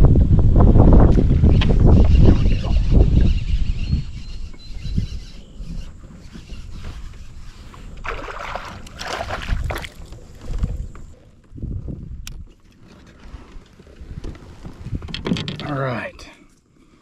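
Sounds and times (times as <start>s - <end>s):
wind buffeting microphone: 0.0s - 12.6s, 13.2s - 15.3s
water splashing: 7.9s - 10.6s.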